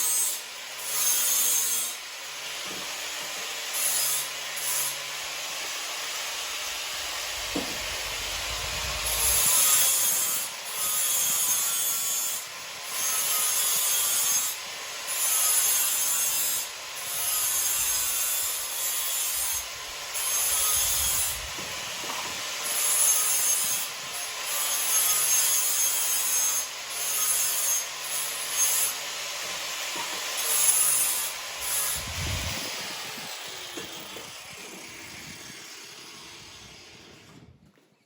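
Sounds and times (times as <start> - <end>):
abrasive grinding on steel: 3.6 - 14.6, 29.8 - 36.9.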